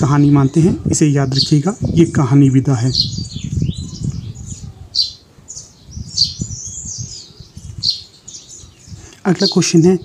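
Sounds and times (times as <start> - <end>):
bird chirping and squawking: 2.8 - 9.8.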